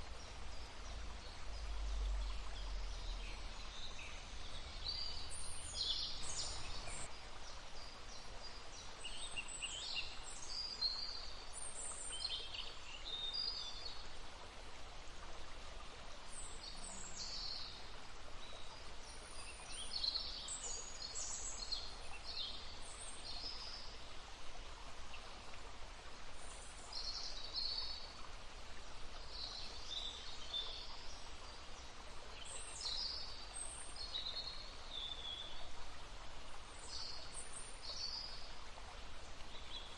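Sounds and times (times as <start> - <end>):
songbirds chirping and trilling: 0.0 - 7.1
babbling stream: 0.0 - 39.9.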